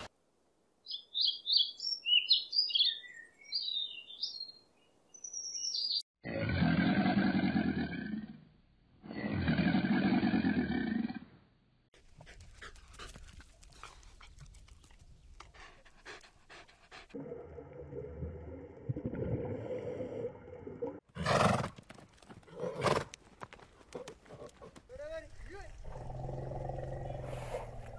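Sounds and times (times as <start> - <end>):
crocodile growling: 6.2 - 8.4, 25.8 - 27.9
dog panting: 12.0 - 17.2.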